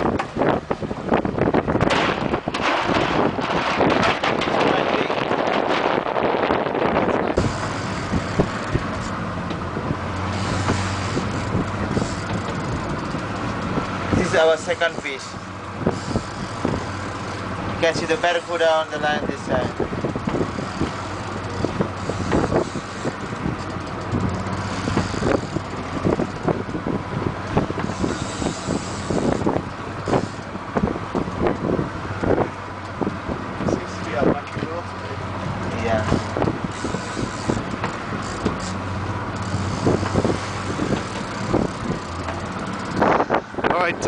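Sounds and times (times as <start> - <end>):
boat engine running: 0.0 - 44.0
sea noise: 0.0 - 44.0
wind noise: 0.0 - 44.0
knocks and thumps: 1.8 - 6.0.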